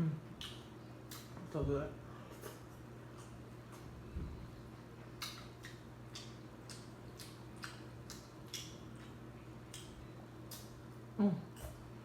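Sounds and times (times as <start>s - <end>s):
steady low hum: 0.0s - 12.0s
chewing food: 4.7s - 11.9s.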